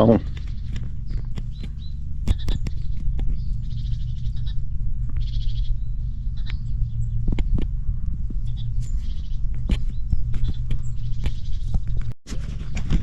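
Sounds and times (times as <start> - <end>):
scattered clicks: 0.0 - 3.5, 6.4 - 12.1
steady low rumble: 0.0 - 13.0.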